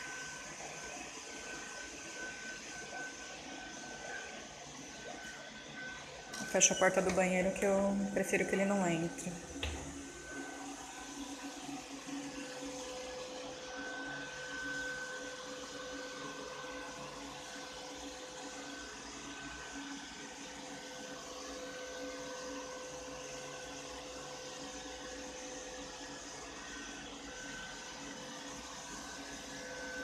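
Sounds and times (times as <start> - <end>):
robot vacuum cleaner running: 0.0 - 30.0.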